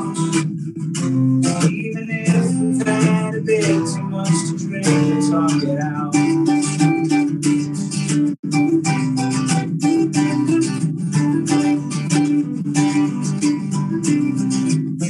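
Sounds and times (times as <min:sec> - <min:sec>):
strummed guitar chords: 0:00.0 - 0:15.0
live band playing: 0:06.3 - 0:14.8.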